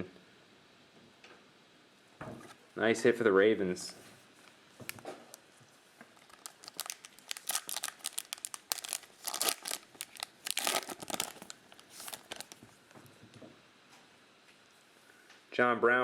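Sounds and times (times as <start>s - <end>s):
plastic wrapper crinkling and tearing: 4.8s - 5.5s, 6.1s - 12.8s.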